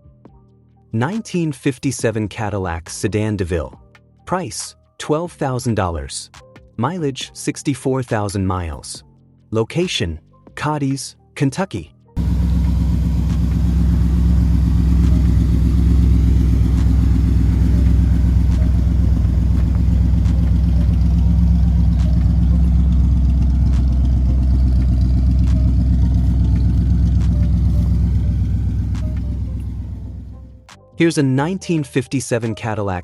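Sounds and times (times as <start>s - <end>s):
car engine idling: 12.2s - 30.7s.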